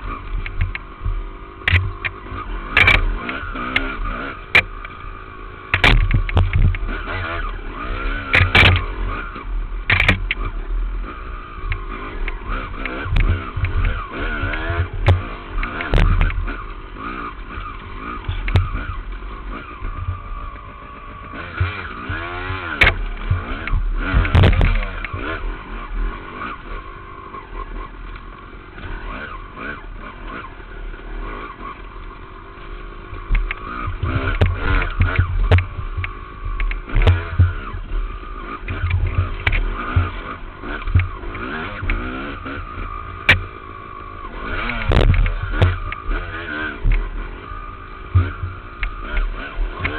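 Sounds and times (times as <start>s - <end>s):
dirt bike engine revving: 0.0s - 49.9s
bike knocking over rough ground: 5.7s - 6.9s, 12.8s - 16.6s, 21.6s - 25.4s, 44.5s - 46.2s.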